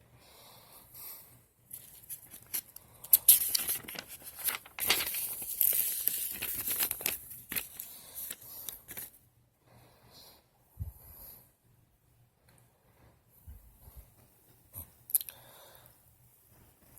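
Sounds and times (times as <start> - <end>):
pages turning: 1.7 - 9.2
paper rustling and crinkling: 1.7 - 9.2.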